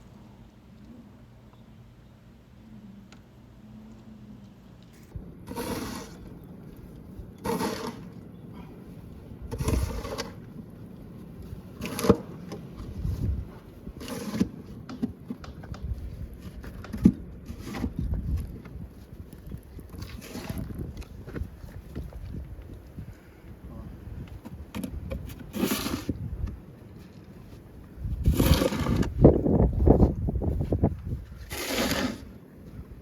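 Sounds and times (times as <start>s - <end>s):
noisy scrapes: 5.0s - 6.3s, 7.4s - 8.2s, 9.5s - 10.5s, 12.9s - 14.7s, 20.0s - 21.1s, 25.3s - 26.3s, 28.0s - 32.4s.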